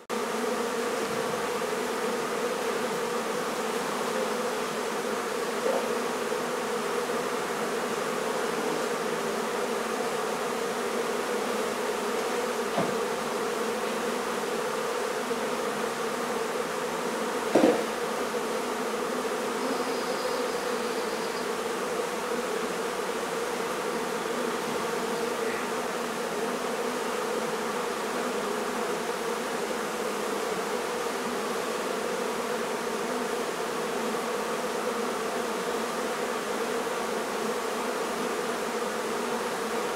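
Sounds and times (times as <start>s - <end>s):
honey bees buzzing: 0.0s - 39.9s
knock: 12.7s - 13.0s, 17.5s - 17.9s.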